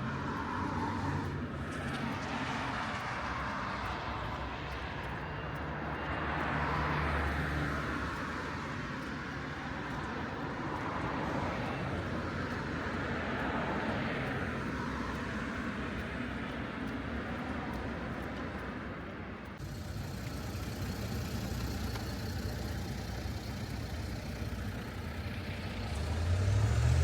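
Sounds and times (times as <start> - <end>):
cars passing: 0.0 - 27.0.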